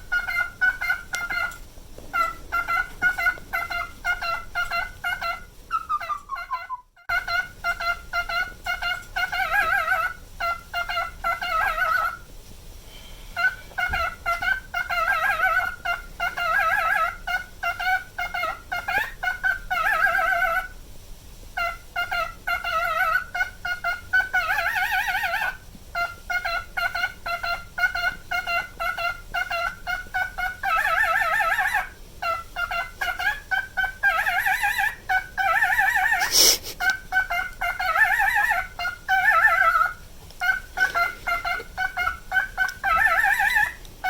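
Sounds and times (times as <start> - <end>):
cockatiel whistling: 0.1 - 12.2, 21.6 - 43.8.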